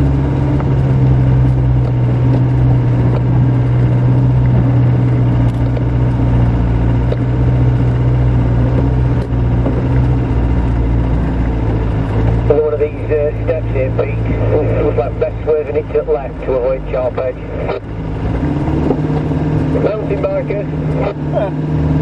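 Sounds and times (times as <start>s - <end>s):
car engine running: 0.0s - 22.0s
light knocks and rattles: 0.5s - 10.4s.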